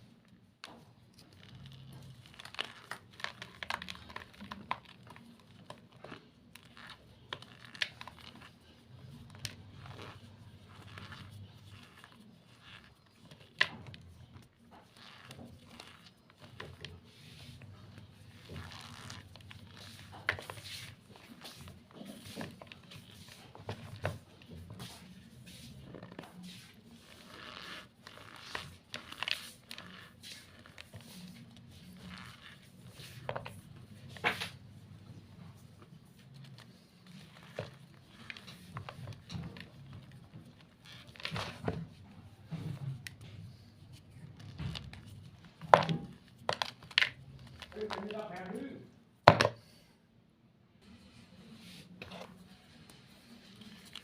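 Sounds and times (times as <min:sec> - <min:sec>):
chalk crunching and crackling: 0:01.2 - 0:34.6.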